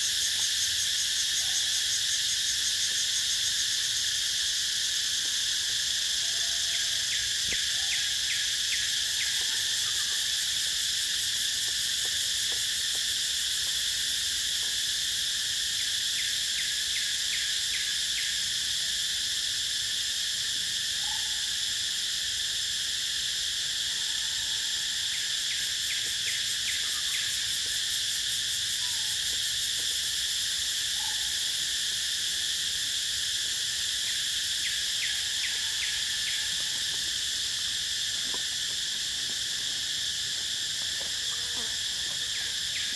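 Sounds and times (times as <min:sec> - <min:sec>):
high-pitched insect chorus: 0:00.0 - 0:42.9.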